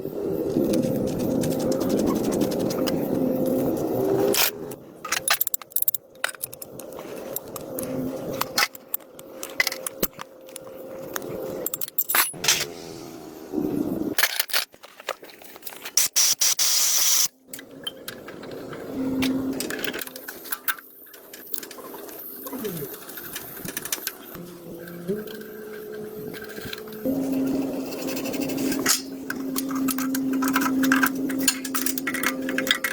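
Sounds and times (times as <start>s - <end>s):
air hiss: 16.1s - 17.3s.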